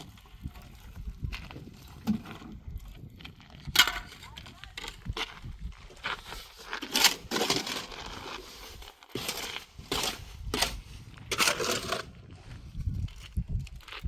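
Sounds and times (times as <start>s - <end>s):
tool scraping mortar: 6.2s - 12.3s.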